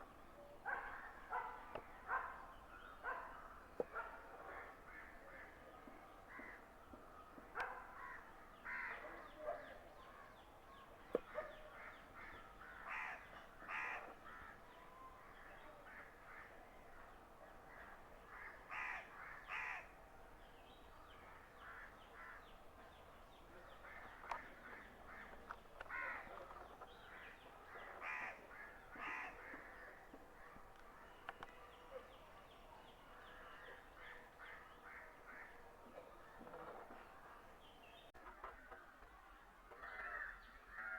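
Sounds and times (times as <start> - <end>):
crows cawing: 8.0 - 9.0, 11.8 - 14.6, 18.3 - 19.9, 24.0 - 26.3, 28.0 - 30.0, 39.8 - 40.9.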